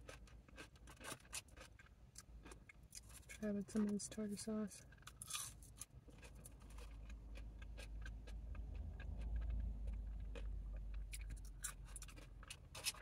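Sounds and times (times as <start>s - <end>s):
chewing crisp chips: 0.0s - 4.1s, 4.8s - 13.0s
low rumble: 6.8s - 12.5s.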